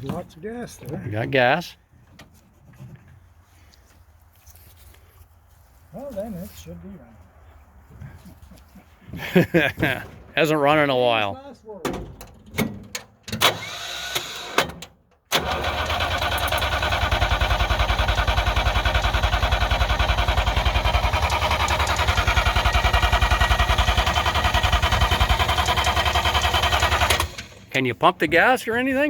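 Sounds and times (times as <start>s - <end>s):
starter cranking engine: 13.4s - 14.7s, 15.3s - 27.7s.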